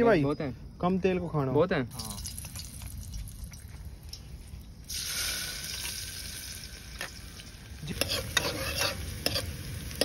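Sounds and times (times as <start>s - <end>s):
vegetables sizzling in hot oil: 4.1s - 10.0s
spoon scraping against pot: 7.9s - 10.0s.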